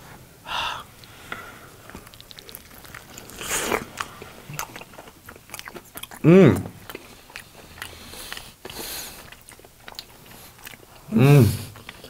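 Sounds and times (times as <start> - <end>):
wet chewing clicks: 1.8 - 11.1, 11.7 - 12.0
people biting fried chicken: 1.9 - 12.0.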